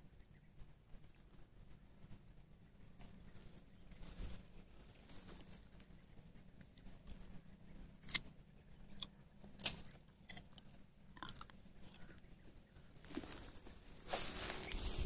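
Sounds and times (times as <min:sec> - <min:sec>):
foliage rustling: 0:03.1 - 0:07.4, 0:12.8 - 0:15.0
dry leaves and twigs snapping: 0:03.9 - 0:06.0, 0:07.9 - 0:12.2, 0:13.0 - 0:15.0
footsteps in dry brush: 0:13.0 - 0:15.0.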